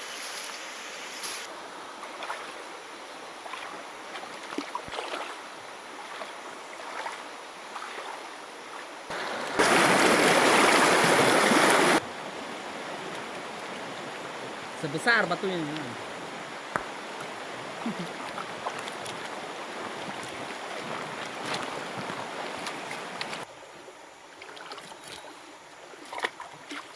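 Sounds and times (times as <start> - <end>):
close rush of water: 0.0 - 23.5
river flowing: 0.0 - 23.5
small water splashes: 2.0 - 2.7, 3.4 - 12.1, 15.0 - 23.5, 26.0 - 26.9.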